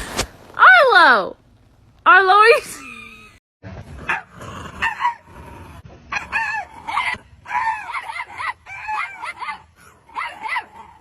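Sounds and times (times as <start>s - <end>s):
dog barking: 4.1s - 5.3s, 6.1s - 10.8s.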